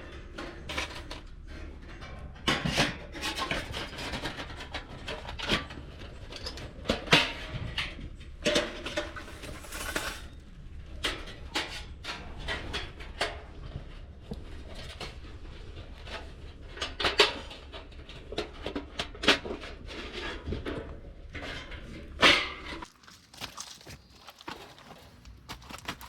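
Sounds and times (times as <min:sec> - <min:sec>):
camping gear knocking and clinking: 0:21.4 - 0:26.0
rustling: 0:22.8 - 0:26.0.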